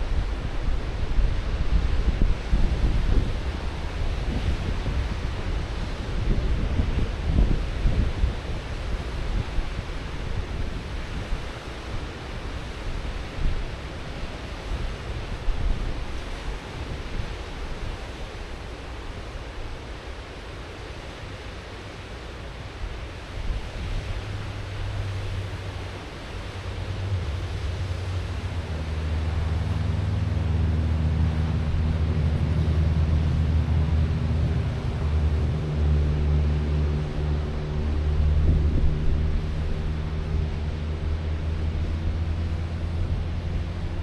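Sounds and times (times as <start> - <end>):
wind buffeting microphone: 0.0 - 18.2, 22.6 - 44.0
ocean surf washing ashore: 0.0 - 44.0
vehicle engine hum: 22.6 - 44.0.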